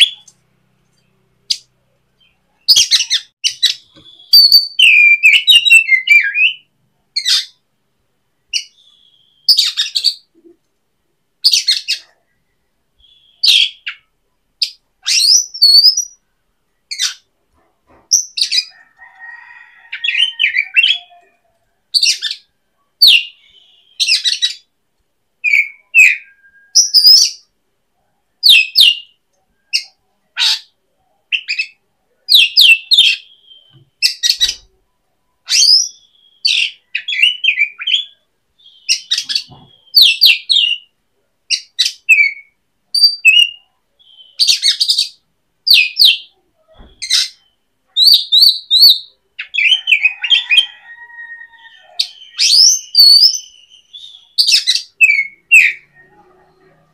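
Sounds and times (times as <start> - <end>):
bird chirping and whistling: 2.7 - 7.5, 15.0 - 16.2, 25.4 - 27.4, 35.5 - 40.9, 41.6 - 46.3, 48.0 - 50.8, 51.8 - 55.9.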